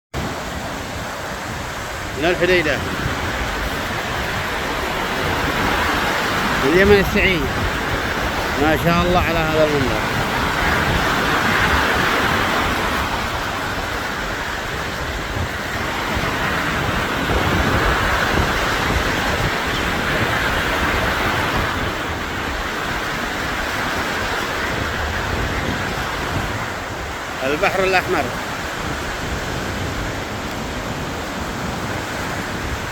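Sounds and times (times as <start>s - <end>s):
sea waves washing on shore: 0.2s - 32.9s
wind rumbling on microphone: 0.2s - 32.9s.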